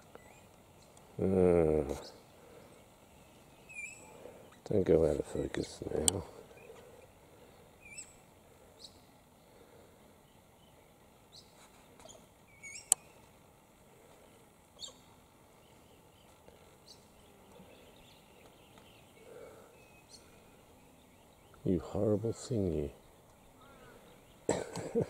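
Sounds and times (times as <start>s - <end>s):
high bird chirps: 3.2s - 4.6s, 7.8s - 9.0s, 10.3s - 13.2s.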